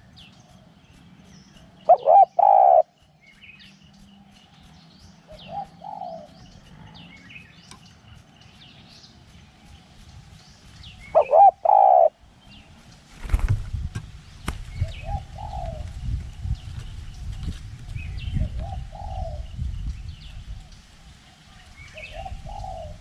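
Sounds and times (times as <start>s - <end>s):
small birds chirping: 0.0s - 23.0s
dove cooing: 1.6s - 3.0s, 5.3s - 6.9s, 11.1s - 12.2s, 14.9s - 15.9s, 18.4s - 19.5s, 22.0s - 23.0s
wind rumbling on microphone: 3.5s - 23.0s.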